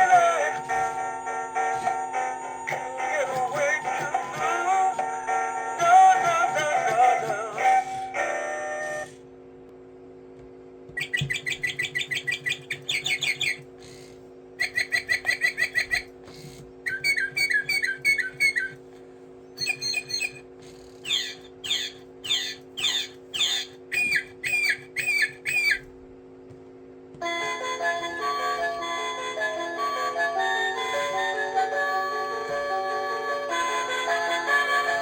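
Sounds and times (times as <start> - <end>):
music with singing: 0.0 - 9.1
steady low hum: 0.0 - 35.0
toy bird whistled trills: 11.0 - 13.6, 14.6 - 16.1, 16.9 - 18.8, 19.6 - 25.9.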